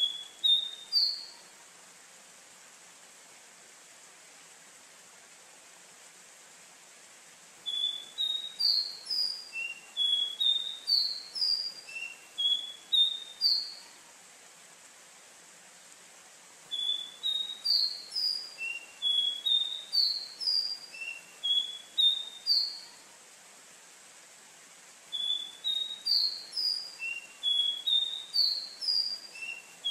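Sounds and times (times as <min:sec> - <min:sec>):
faint steady hiss: 0:00.0 - 0:29.9
bird singing short clear notes: 0:07.6 - 0:13.8, 0:16.7 - 0:22.9, 0:25.1 - 0:29.9.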